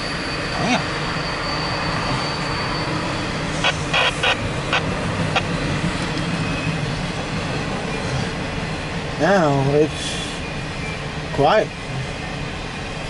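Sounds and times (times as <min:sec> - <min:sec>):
freight train rumbling past: 0:00.0 - 0:13.0
high wheel squeal: 0:00.0 - 0:13.0
sharp clicks from train wheels: 0:04.8 - 0:07.2.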